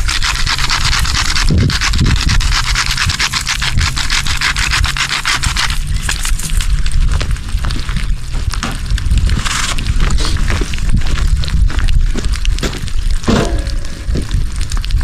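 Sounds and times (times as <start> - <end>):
rhythmic scraping strokes: 0.0 - 6.7, 13.3 - 14.5.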